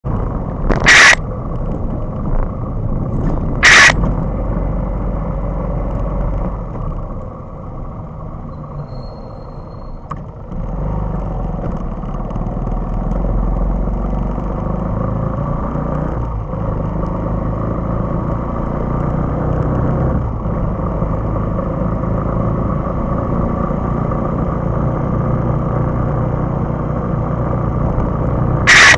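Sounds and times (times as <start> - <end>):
motorcycle engine and road rumble: 0.0 - 28.9
loud horn blasts: 28.7 - 28.9.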